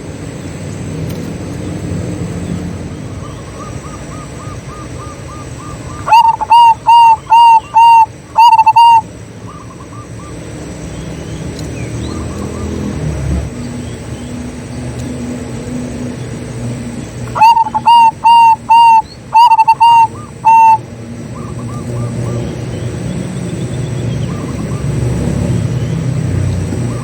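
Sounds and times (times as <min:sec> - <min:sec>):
dove cooing: 0:03.5 - 0:10.3, 0:17.2 - 0:22.6.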